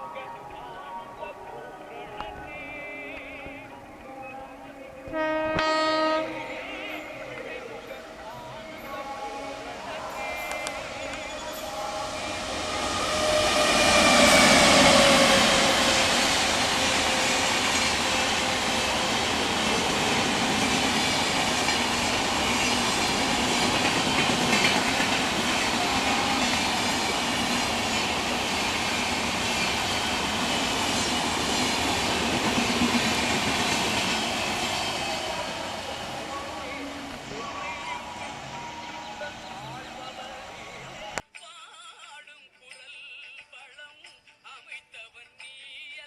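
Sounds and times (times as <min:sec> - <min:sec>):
locomotive whine: 0:03.2 - 0:41.2
train wheels clattering: 0:06.8 - 0:41.2.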